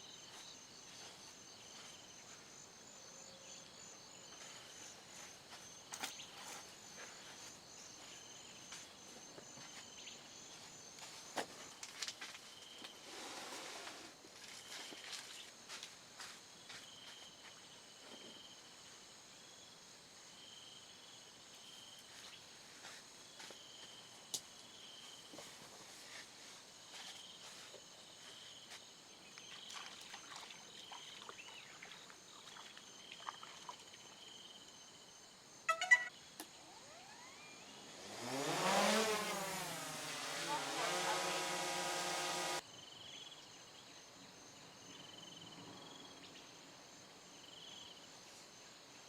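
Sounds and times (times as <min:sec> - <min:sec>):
high chirping call: 0:35.7 - 0:37.8
sound with shifting pitch: 0:35.7 - 0:42.6.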